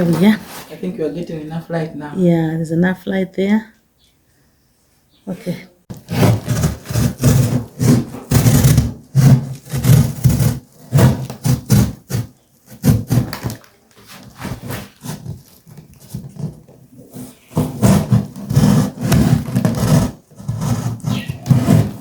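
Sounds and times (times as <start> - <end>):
scraping and rubbing of material: 0.0 - 1.1, 5.9 - 22.0.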